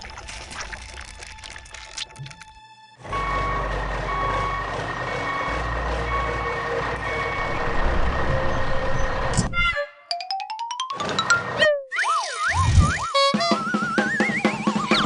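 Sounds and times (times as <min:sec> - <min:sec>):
reversing alarm beeping: 0:03.0 - 0:09.2
loud engine noise: 0:03.0 - 0:09.5.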